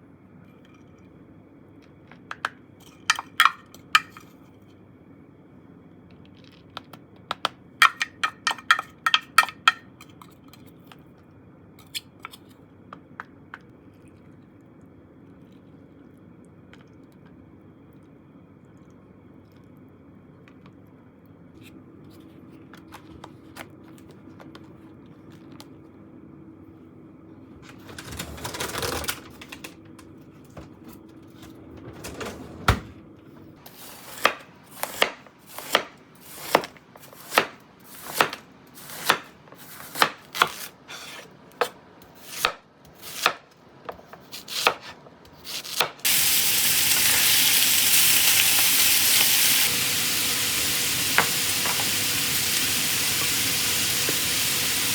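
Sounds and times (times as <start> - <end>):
knife chopping on cutting board: 34.0 - 43.4, 44.0 - 46.0
food sizzling in hot pan: 46.1 - 54.9.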